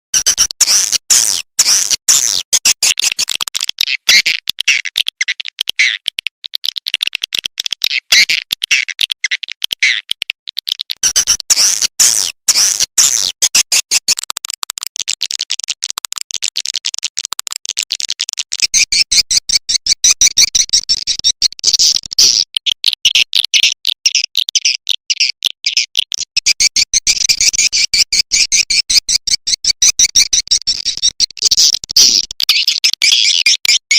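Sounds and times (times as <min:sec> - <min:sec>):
high twittering bird chirps: 0:32.5 - 0:33.9.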